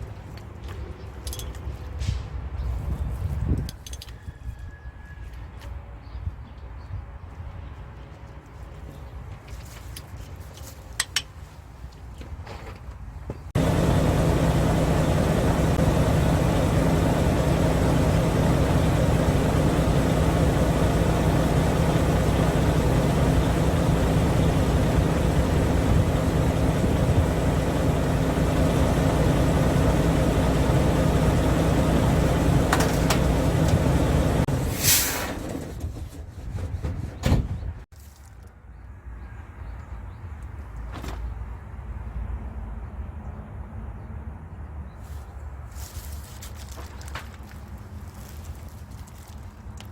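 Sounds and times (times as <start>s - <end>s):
heavy machine engine rumbling: 13.6s - 36.0s.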